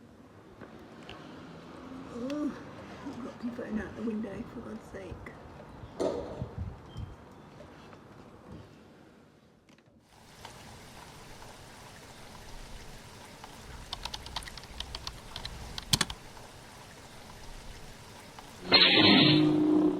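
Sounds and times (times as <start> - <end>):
steady rain falling: 10.0 - 19.9.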